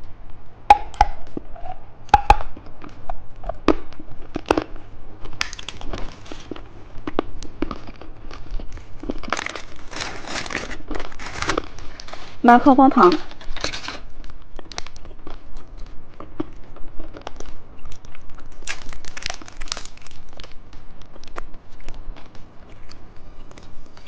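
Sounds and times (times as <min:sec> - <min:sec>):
plastic packaging crinkling: 0:05.2 - 0:15.9, 0:17.0 - 0:23.0.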